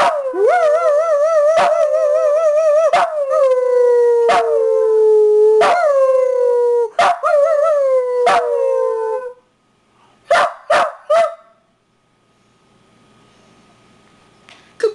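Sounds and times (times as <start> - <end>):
dog howling: 0.0 - 9.4
dog barking: 5.6 - 5.8, 7.0 - 7.2, 10.3 - 11.6.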